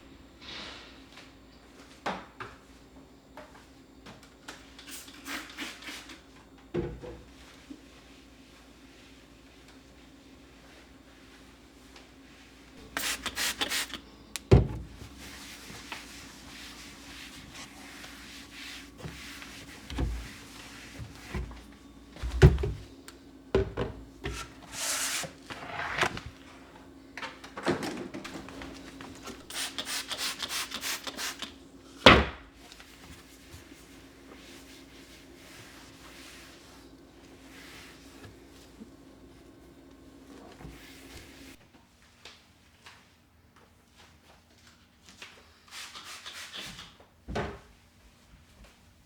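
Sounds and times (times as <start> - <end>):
rubbing or sliding: 24.3 - 26.3.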